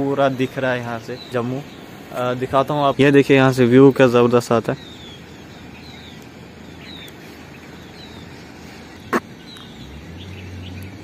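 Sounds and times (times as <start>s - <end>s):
bird chirping: 0.0s - 11.0s
steady background hiss: 0.0s - 11.0s.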